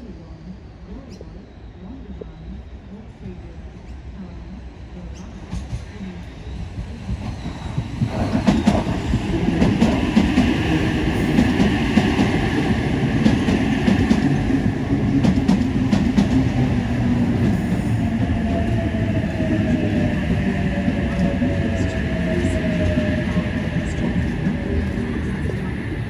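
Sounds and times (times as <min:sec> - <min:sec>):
train wheels clicking over rail joints: 0:07.2 - 0:18.8.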